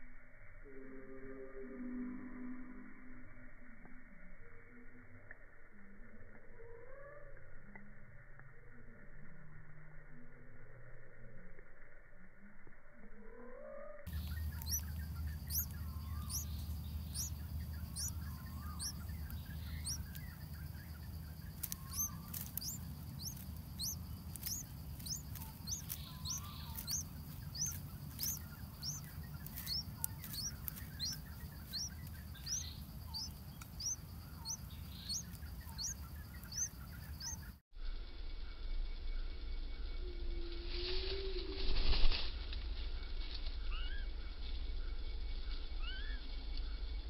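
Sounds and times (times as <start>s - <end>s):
low rumble: 7.3s - 47.0s
small bird chirping: 14.0s - 37.6s, 43.6s - 44.1s, 44.8s - 46.8s.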